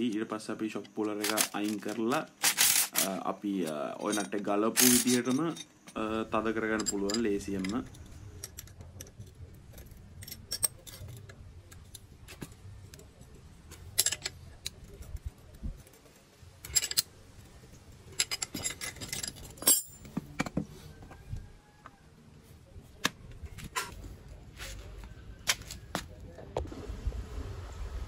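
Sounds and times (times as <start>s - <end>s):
metal tools clinking: 0.8s - 20.6s.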